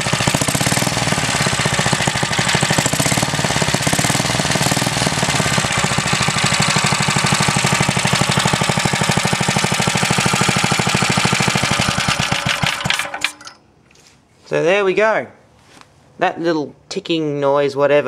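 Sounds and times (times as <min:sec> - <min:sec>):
small stationary engine running: 0:00.0 - 0:13.6.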